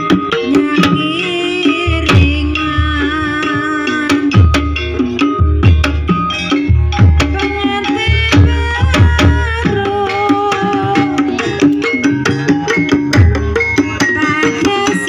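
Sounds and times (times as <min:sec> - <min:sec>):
hand drums beating: 0:00.0 - 0:15.0
ringing pitched percussion: 0:00.0 - 0:15.0
wavering melody line: 0:00.0 - 0:15.0.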